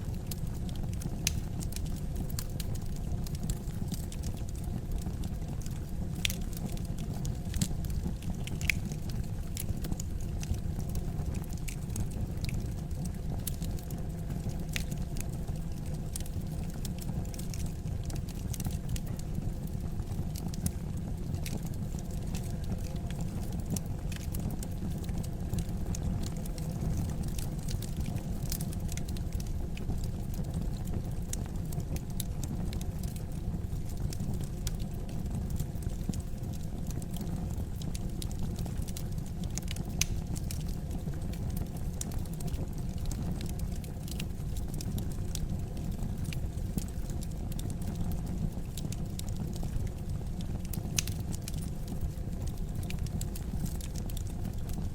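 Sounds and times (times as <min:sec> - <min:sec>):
low rumble of flames: 0:00.0 - 0:54.9
wood fire crackling: 0:00.1 - 0:54.9.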